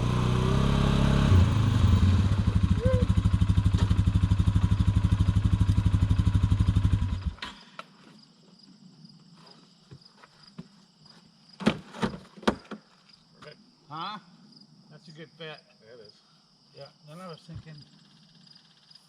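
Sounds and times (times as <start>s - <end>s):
motorcycle engine idling: 1.4s - 7.4s
insects chirping: 2.8s - 19.0s.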